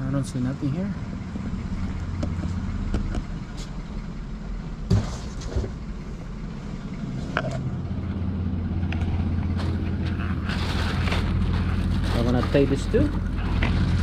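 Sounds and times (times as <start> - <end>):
low engine hum: 0.0 - 14.0
knocks and clatters: 4.8 - 6.0.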